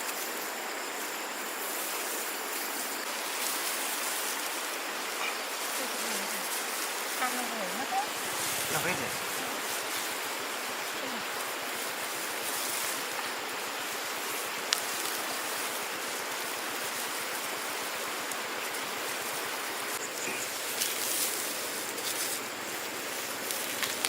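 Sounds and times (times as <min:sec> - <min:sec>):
flowing water rushing: 0:03.1 - 0:20.0.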